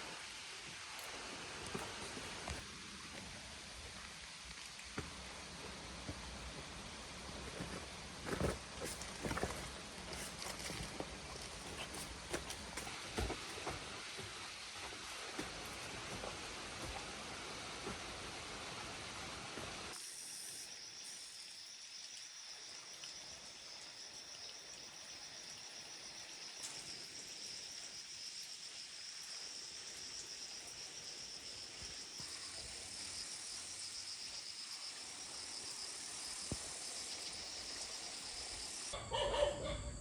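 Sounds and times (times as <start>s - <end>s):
insects chirring: 19.9s - 40.0s
rustling hiss: 26.1s - 38.9s.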